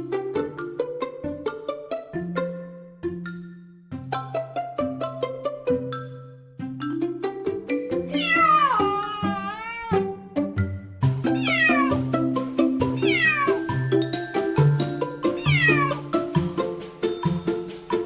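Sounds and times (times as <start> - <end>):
background music: 0.0 - 18.0
cat meowing: 8.1 - 10.1, 11.3 - 12.1, 12.9 - 13.7, 15.4 - 16.1.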